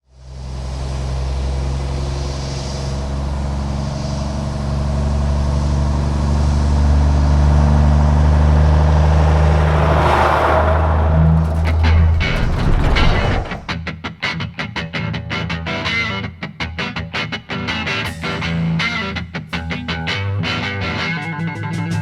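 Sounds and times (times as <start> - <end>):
heavy diesel engine running: 1.7 - 13.7.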